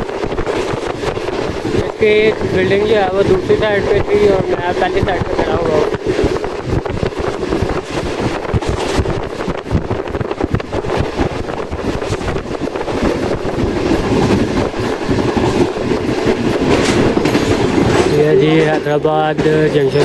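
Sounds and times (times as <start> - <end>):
train rumble: 0.0 - 20.0
wheels clattering over rail joints: 0.0 - 20.0
wind buffeting microphone: 0.0 - 20.0.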